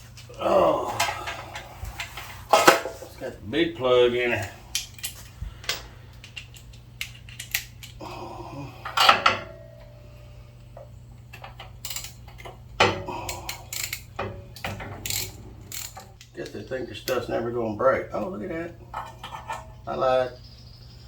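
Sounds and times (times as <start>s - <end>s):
metallic clicks of hand tools: 4.7s - 8.0s, 11.3s - 17.2s.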